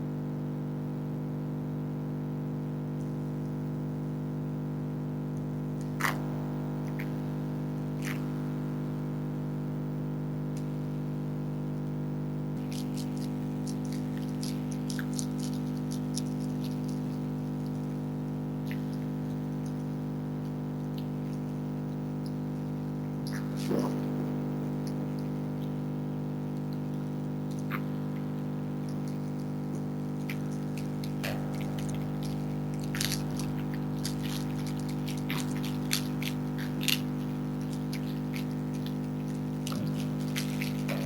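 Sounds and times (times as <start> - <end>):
freezer hum: 0.0 - 41.0
foxes chewing food: 5.8 - 7.3, 7.9 - 8.4, 12.6 - 41.0.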